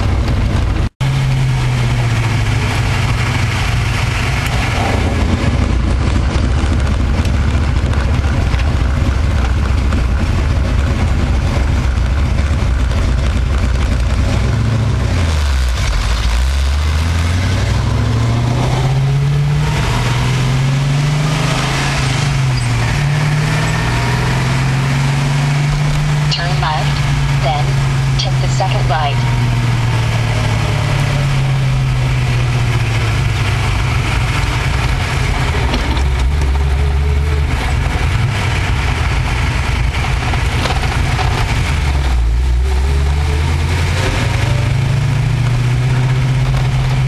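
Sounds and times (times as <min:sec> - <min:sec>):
car engine droning while driving: 0:00.0 - 0:47.0.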